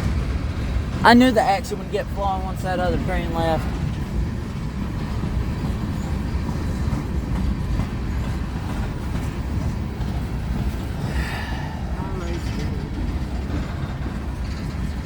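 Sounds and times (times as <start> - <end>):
freight train rumbling on rails: 0.0 - 15.0.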